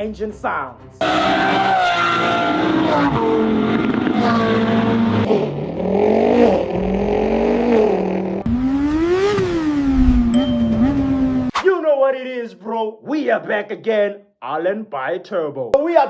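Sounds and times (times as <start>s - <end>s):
engine revving: 1.0s - 11.5s.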